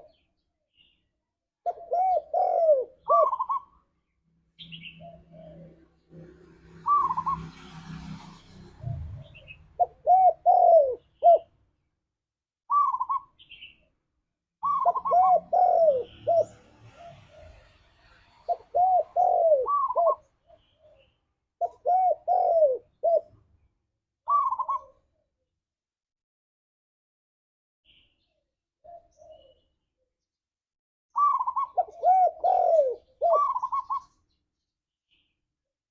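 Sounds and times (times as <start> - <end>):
dove cooing: 1.7 - 3.8, 4.8 - 5.8, 8.8 - 11.5, 12.7 - 13.2, 14.6 - 17.7, 18.5 - 23.4, 24.3 - 25.0, 31.2 - 34.1.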